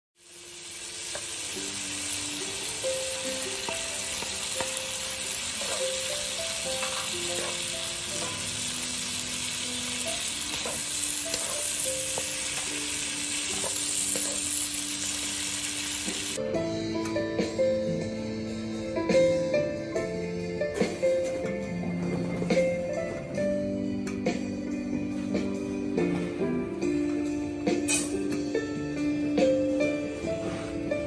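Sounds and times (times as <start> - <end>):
food sizzling in a wok: 0.2 - 16.4
background music melody: 0.2 - 31.0.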